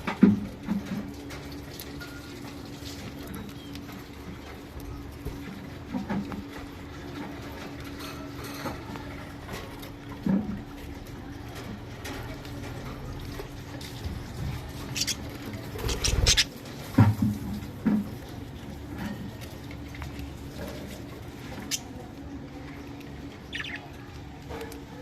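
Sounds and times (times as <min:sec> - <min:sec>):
birds pecking at food: 0:00.0 - 0:25.0.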